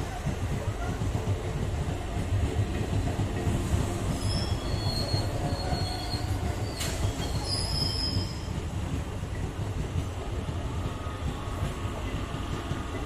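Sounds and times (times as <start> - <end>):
train wheels rumbling on rail: 0.0 - 13.0
high-pitched wheel squeals: 4.2 - 8.5.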